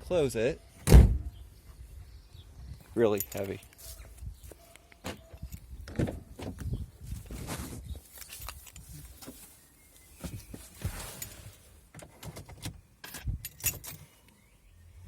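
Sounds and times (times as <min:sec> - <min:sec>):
handling clicks and rustling: 0:02.9 - 0:14.4.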